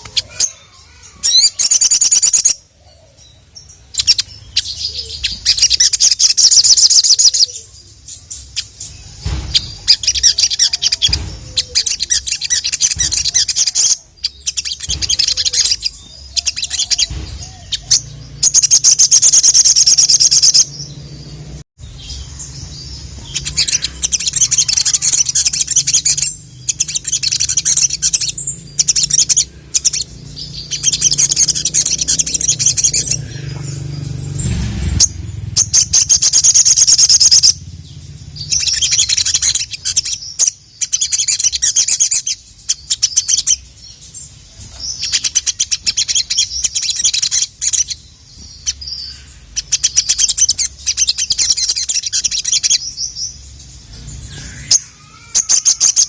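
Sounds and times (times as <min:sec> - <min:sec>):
bird chattering song: 0:00.0 - 0:56.0.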